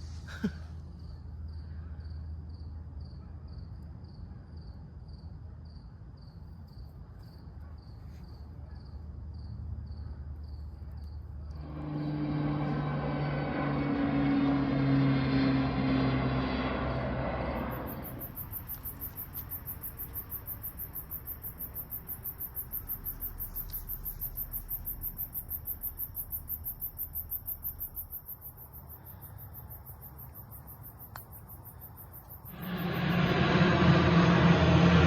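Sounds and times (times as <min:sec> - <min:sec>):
plane rumbling overhead: 0:11.3 - 0:31.0, 0:31.7 - 0:35.0
insect trilling: 0:17.6 - 0:33.4.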